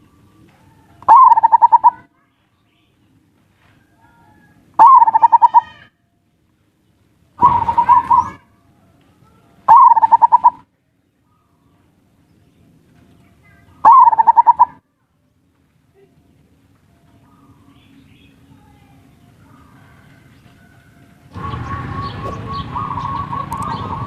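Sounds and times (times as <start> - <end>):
dove cooing: 0.8 - 2.1, 4.1 - 5.8, 7.4 - 8.4, 9.7 - 10.6, 13.8 - 14.8, 21.3 - 24.0.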